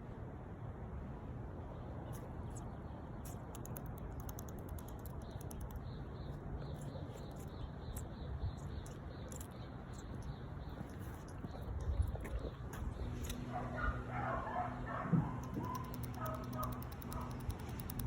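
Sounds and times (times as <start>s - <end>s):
faint rapid clicking: 3.3s - 6.0s, 15.2s - 18.0s
steady low rumble: 3.8s - 18.0s.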